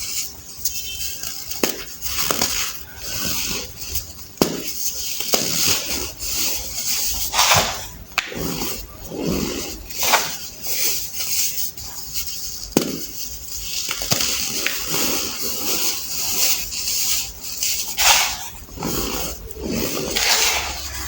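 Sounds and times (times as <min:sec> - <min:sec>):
baking soda crunching by hand: 0:00.0 - 0:21.0
sharp crack: 0:04.4 - 0:08.7.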